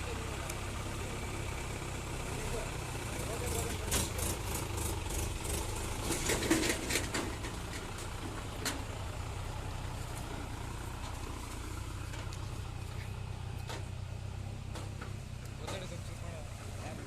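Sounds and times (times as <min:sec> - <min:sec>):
vehicle engine idling: 0:00.0 - 0:17.0
sharp clicks and knocks: 0:14.6 - 0:16.0.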